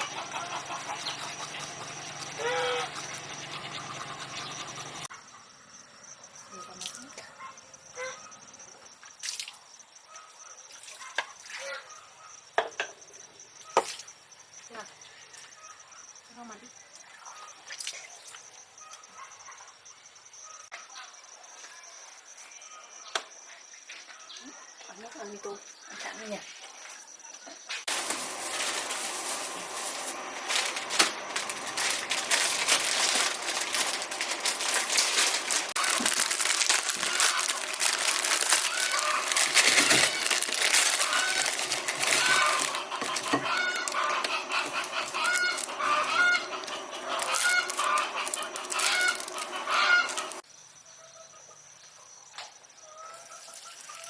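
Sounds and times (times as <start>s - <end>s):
insects trilling: 0.0s - 54.0s
packaging crinkling: 27.9s - 50.4s.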